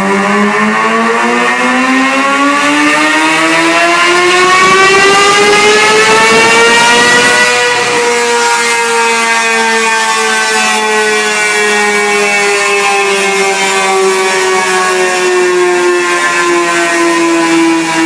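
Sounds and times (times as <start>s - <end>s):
motorcycle engine full throttle: 0.0s - 10.9s.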